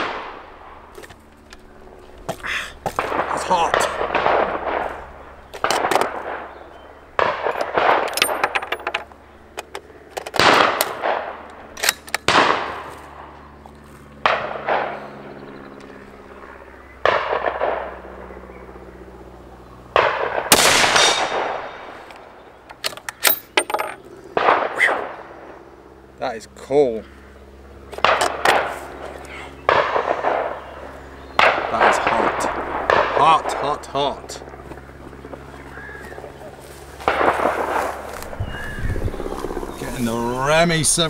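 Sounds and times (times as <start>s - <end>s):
rifle shots: 0.0s - 0.8s, 3.0s - 6.6s, 7.2s - 8.7s, 10.3s - 13.3s, 14.2s - 15.0s, 17.0s - 18.0s, 19.9s - 22.0s, 24.4s - 25.2s, 28.0s - 28.8s, 29.6s - 30.7s, 31.4s - 33.7s, 37.0s - 38.1s.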